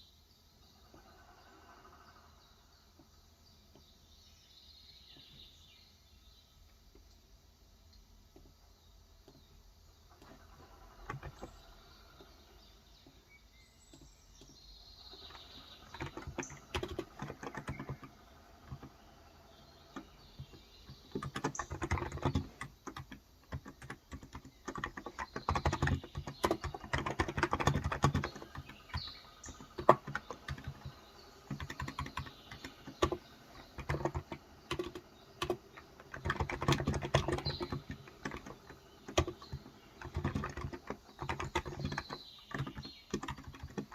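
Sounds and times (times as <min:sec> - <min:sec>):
birds chirping: 0:00.0 - 0:43.9
keyboard typing: 0:10.2 - 0:13.2, 0:13.9 - 0:43.9.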